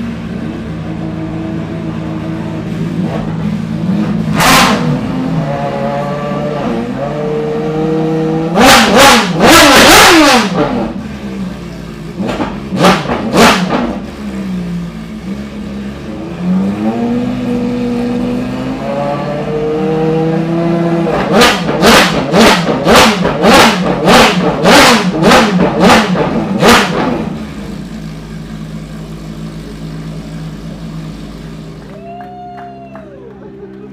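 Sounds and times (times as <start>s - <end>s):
car engines idling: 0.0s - 33.9s
engine revving blips: 3.0s - 11.0s, 16.3s - 27.4s.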